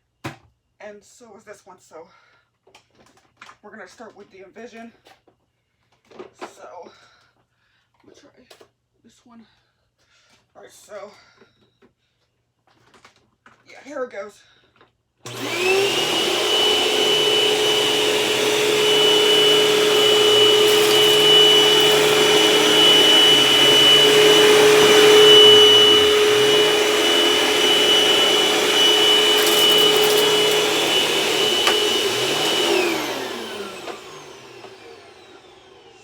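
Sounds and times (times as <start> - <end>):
vacuum cleaner whining: 15.3 - 36.0
vacuum motor winding down: 15.3 - 36.0.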